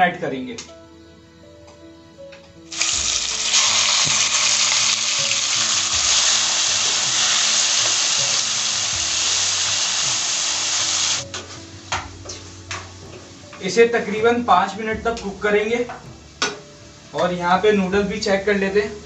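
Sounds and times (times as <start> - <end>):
chicken sizzling in hot oil: 2.7 - 12.8.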